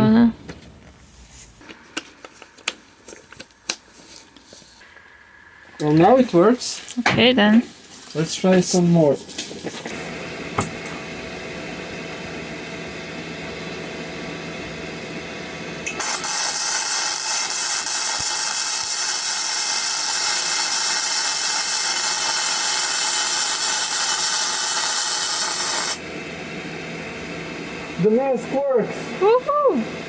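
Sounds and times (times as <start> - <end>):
welder humming: 1.6 - 30.0
welding arc crackling: 15.8 - 26.0.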